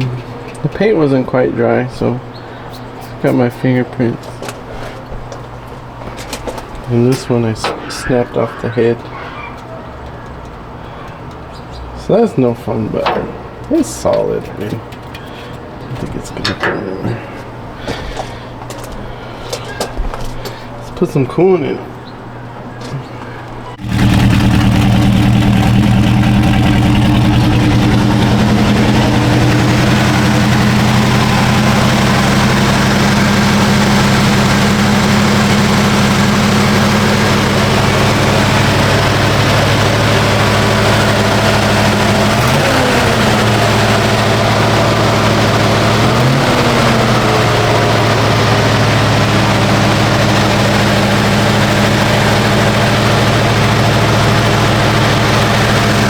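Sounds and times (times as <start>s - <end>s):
car engine idling and revving: 23.8s - 56.0s.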